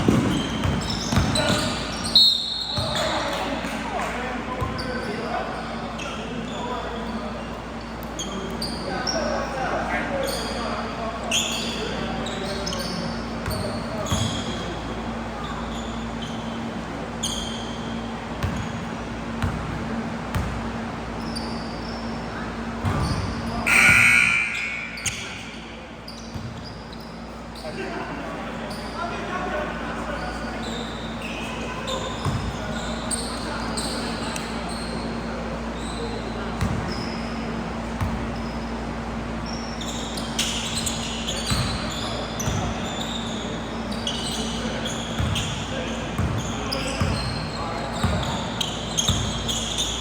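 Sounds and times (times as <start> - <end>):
basketball bouncing: 0.0 - 1.8, 26.3 - 26.6
shoes squeaking on floor: 0.0 - 9.5, 10.2 - 19.6, 21.2 - 28.0, 30.0 - 50.0
loud high sound: 23.7 - 25.3.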